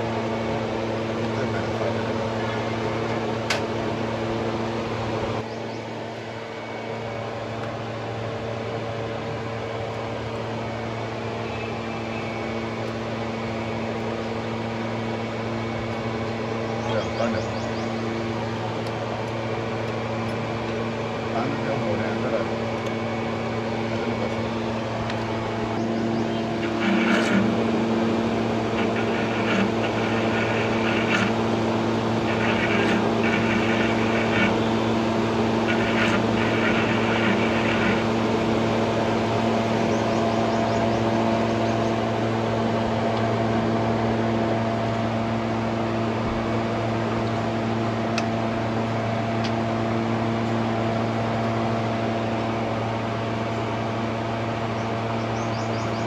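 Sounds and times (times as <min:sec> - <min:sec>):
steady mechanical hum: 0:00.0 - 0:56.0
hissing: 0:26.4 - 0:39.0.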